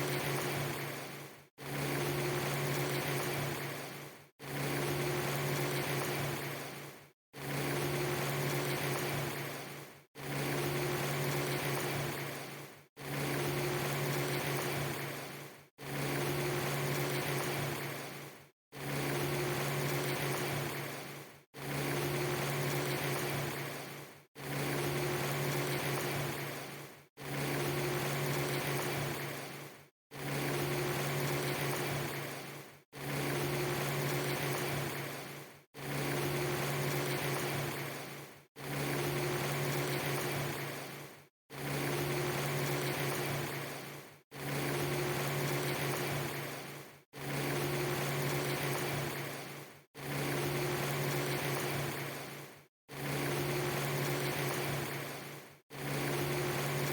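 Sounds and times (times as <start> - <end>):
low motor hum over hiss: 0.0 - 56.9.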